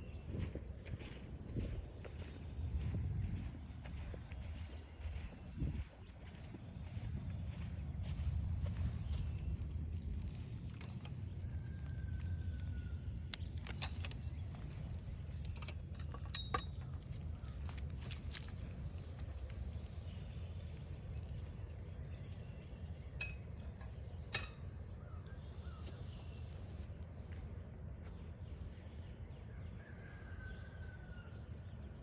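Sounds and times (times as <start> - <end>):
footsteps on forest trail: 0.1 - 13.2, 16.8 - 21.4
light clicks and clinks: 13.3 - 20.2, 23.1 - 24.8.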